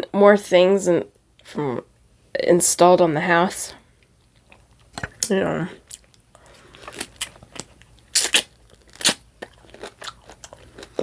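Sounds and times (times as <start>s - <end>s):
person chewing food: 4.3s - 11.0s.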